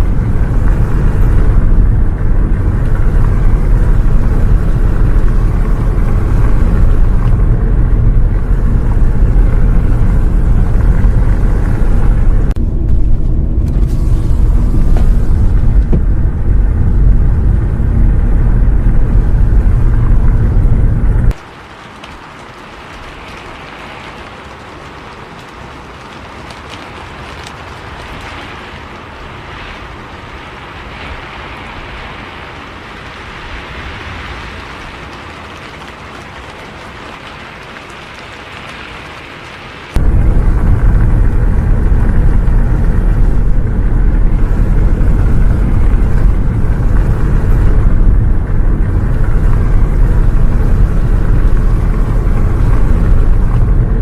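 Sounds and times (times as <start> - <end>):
bus engine rumble: 0.0 - 21.4, 39.9 - 54.0
rain hiss: 0.0 - 54.0
road noise: 0.0 - 54.0.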